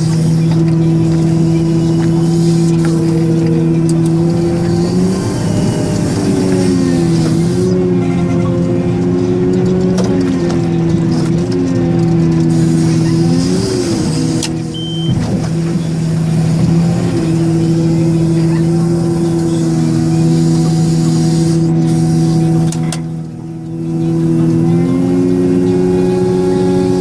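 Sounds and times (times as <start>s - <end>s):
large diesel engine running: 0.0s - 27.0s
short high beep: 14.7s - 15.2s.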